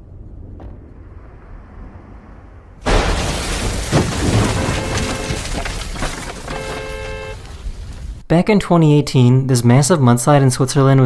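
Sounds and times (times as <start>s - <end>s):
low rumble: 0.0s - 6.4s
loud crash: 0.4s - 8.2s.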